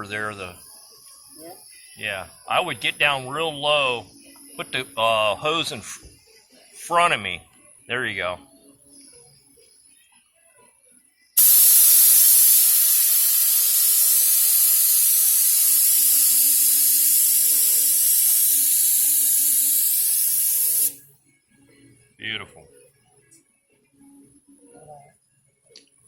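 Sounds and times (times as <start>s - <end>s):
paint spray gun hissing: 11.4s - 21.0s.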